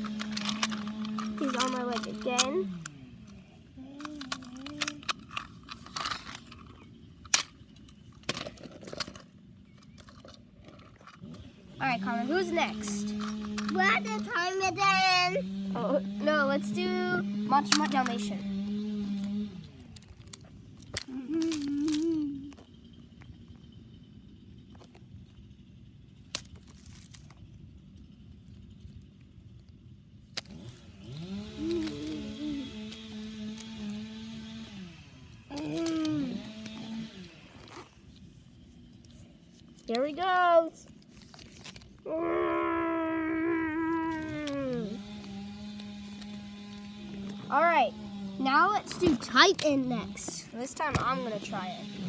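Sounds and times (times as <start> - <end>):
toy truck clattering over rocks: 0.0 - 11.4, 12.3 - 14.4, 17.6 - 18.4, 19.1 - 23.4, 26.3 - 27.6, 30.3 - 34.6, 48.5 - 52.0
low steady background hum: 0.0 - 52.0
toy truck knocking against rocks: 48.8 - 51.6.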